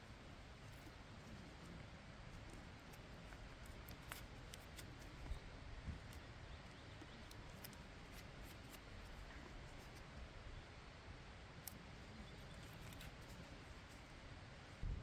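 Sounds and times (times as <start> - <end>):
faint campfire crackling: 0.0 - 14.8.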